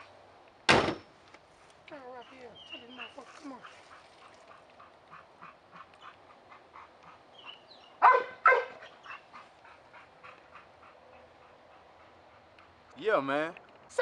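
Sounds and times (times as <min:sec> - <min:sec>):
dog barking: 0:08.0 - 0:09.2.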